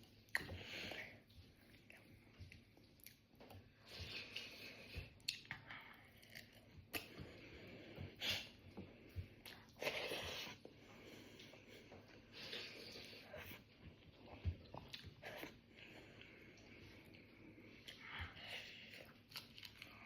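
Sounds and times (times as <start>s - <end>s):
faint chewing: 0.0s - 20.0s.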